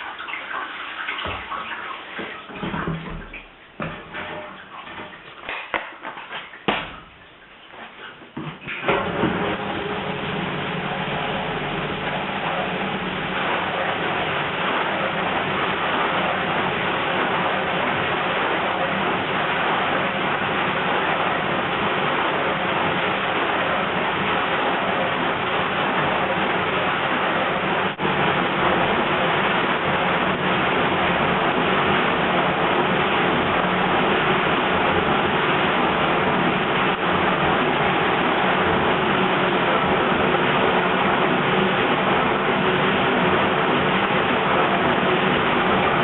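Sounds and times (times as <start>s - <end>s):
water churning and splashing: 0.0s - 46.0s
low motor hum: 8.8s - 19.8s.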